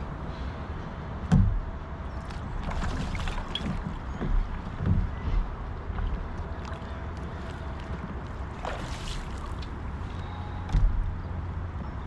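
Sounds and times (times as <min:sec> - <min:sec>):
water swish: 0:02.2 - 0:10.5
water against kayak hull: 0:02.2 - 0:10.7.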